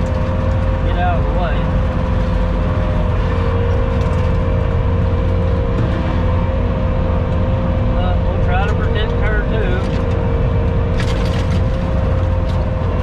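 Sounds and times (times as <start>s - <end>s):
constant whine: 0.0s - 13.0s
skid steer engine rumble: 0.0s - 13.0s.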